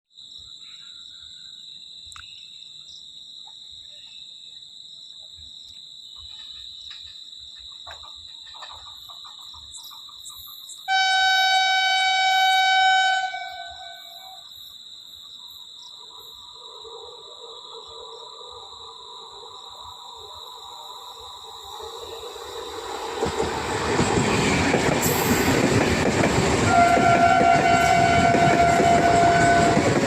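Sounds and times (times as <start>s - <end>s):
insects chirring: 0.2s - 30.0s
train horn blast: 10.9s - 14.3s, 26.6s - 30.0s.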